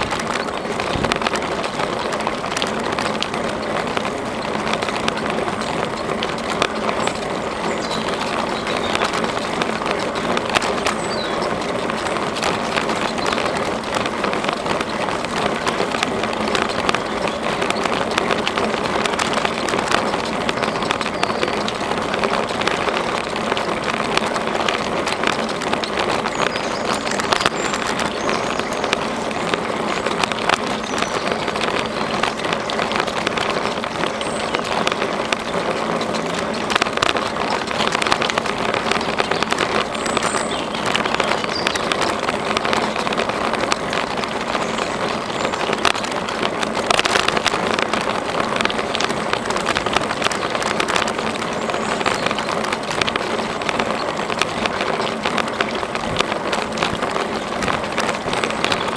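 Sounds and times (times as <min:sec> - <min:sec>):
bicycle rolling on trail: 0:00.0 - 0:58.9
small rattles and clicks: 0:00.0 - 0:58.9.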